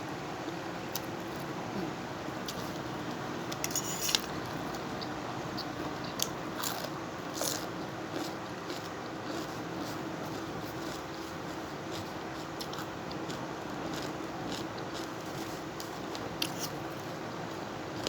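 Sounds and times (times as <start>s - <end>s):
person chewing and crunching food: 3.6s - 17.1s.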